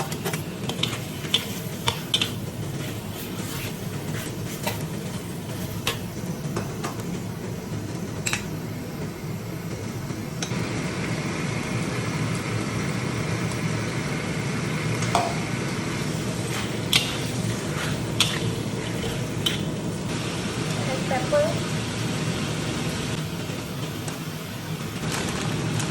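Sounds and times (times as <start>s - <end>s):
onions frying in oil: 0.0s - 25.9s.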